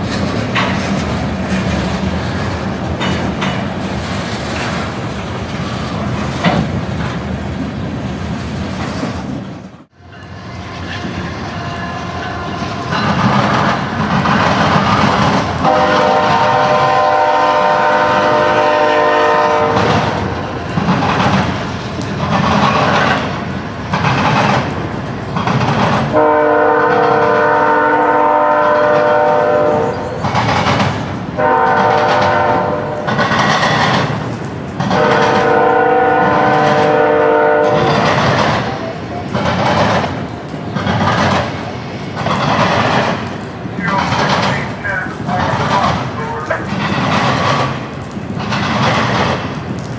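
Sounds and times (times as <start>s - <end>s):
train rumble and rail clatter: 0.0s - 49.9s
locomotive air horn: 15.6s - 20.2s, 26.2s - 30.2s, 31.4s - 33.1s, 35.0s - 38.0s.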